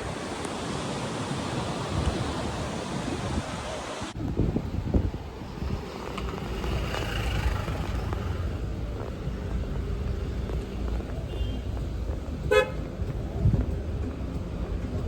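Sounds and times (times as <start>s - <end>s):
traffic rumble: 0.0s - 15.0s
wind: 0.0s - 15.0s
car horn toot: 11.3s - 11.7s, 12.5s - 12.8s.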